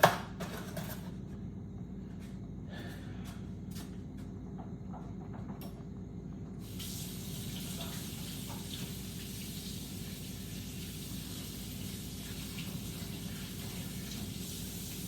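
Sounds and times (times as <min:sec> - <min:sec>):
faucet water running into sink: 0:06.6 - 0:15.0.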